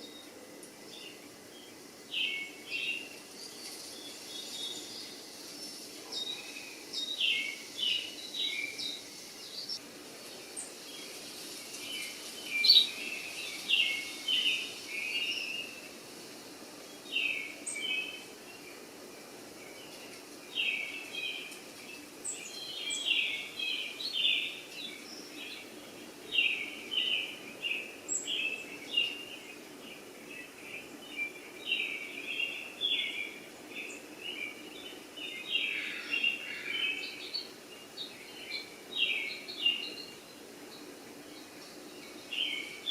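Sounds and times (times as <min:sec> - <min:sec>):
faint background hum: 0:00.0 - 0:42.9
small birds chirping: 0:00.0 - 0:42.9.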